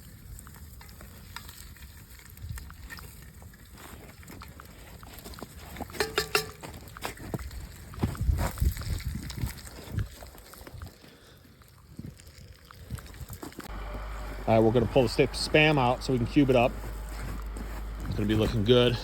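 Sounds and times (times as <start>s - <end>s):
low steady rumble: 13.7s - 19.0s.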